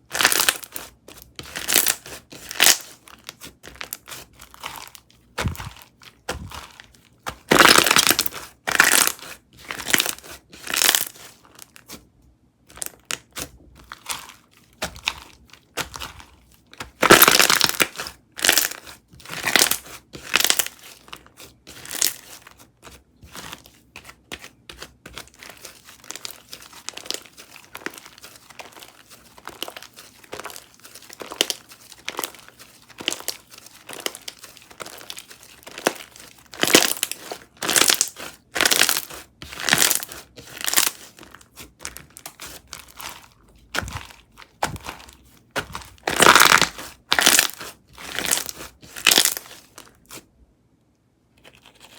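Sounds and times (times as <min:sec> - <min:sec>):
slime squished by hand: 0:00.2 - 0:12.0, 0:25.6 - 0:50.2.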